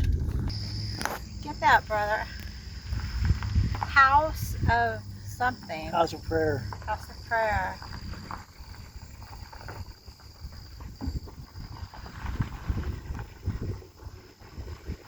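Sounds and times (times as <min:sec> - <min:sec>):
low thumps from road: 0:00.0 - 0:02.0, 0:02.8 - 0:05.1, 0:06.5 - 0:15.0
car cabin rumble: 0:00.0 - 0:02.1.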